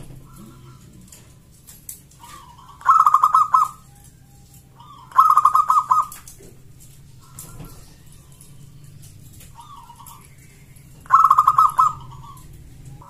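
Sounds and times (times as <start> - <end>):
dove cooing: 0.0 - 13.0.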